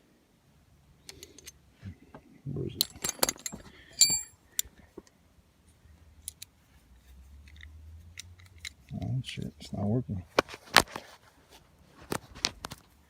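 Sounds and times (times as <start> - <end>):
metal hand tools clinking: 2.8 - 4.4.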